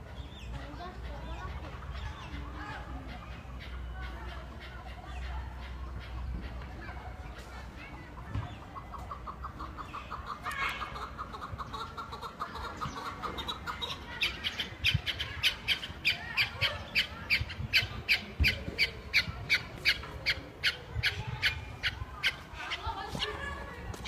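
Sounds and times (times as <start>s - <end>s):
partridge sharp repeated calls: 11.0s - 22.8s.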